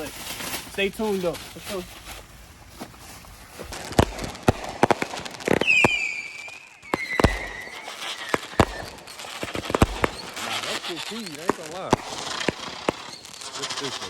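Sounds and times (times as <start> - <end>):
fireworks bangs: 2.6 - 14.0
falling firework whistle: 3.7 - 14.0.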